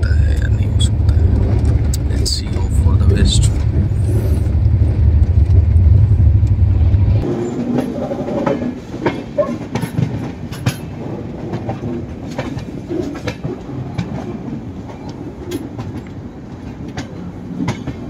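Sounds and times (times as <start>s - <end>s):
heavy low rumble: 0.0s - 7.4s
train coach running noise: 0.0s - 18.0s
wheels clacking over rail joints: 7.2s - 18.0s.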